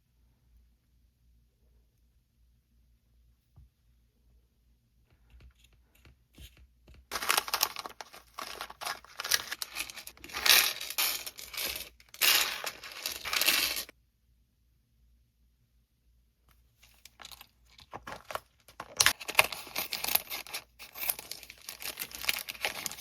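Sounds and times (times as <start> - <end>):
packaging crinkling and tearing: 7.1 - 13.9, 16.9 - 23.0.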